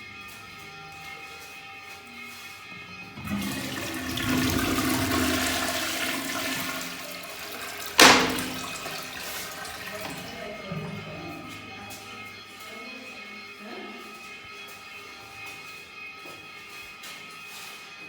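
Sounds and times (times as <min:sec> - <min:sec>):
toilet flushing: 0:03.2 - 0:11.7
sharp loud knock: 0:08.0 - 0:08.8.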